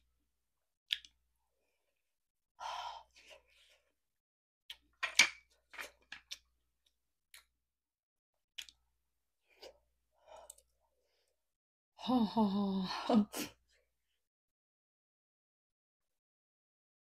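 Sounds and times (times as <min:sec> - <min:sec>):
wet chewing and mouth clicks: 0:00.9 - 0:01.2, 0:08.6 - 0:08.8.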